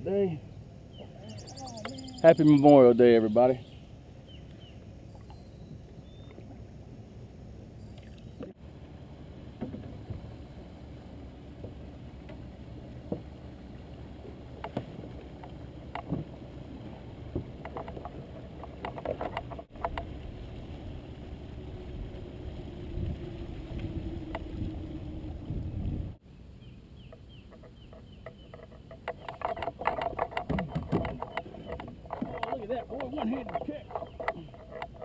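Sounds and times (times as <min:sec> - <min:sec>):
wind and water rumble: 0:00.0 - 0:35.0
knocks and clicks: 0:17.3 - 0:20.1, 0:27.1 - 0:35.0.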